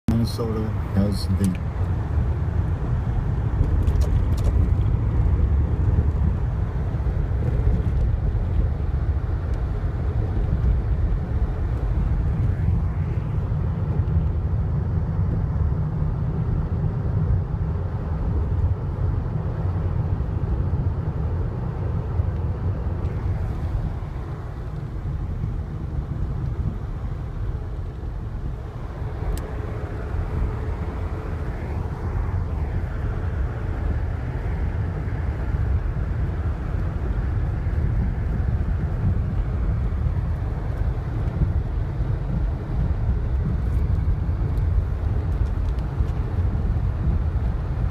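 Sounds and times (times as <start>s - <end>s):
wind buffeting microphone: 1.6s - 47.9s.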